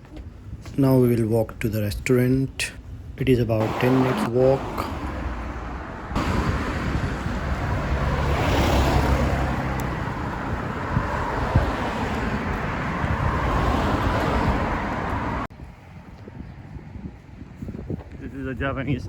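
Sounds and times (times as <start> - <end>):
wind buffeting microphone: 0.0 - 19.0
passing traffic engine hum: 3.6 - 15.5.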